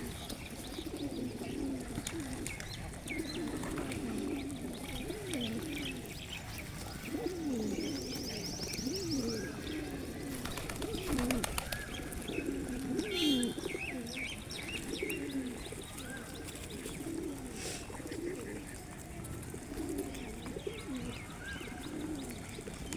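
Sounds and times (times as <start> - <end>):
pigeons cooing: 0.0 - 22.9
small birds chirping: 0.0 - 22.9.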